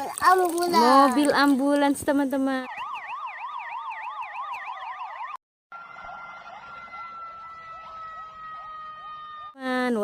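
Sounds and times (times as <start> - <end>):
siren wailing up and down: 2.3 - 9.6
siren falling tone with chirps: 2.6 - 9.6.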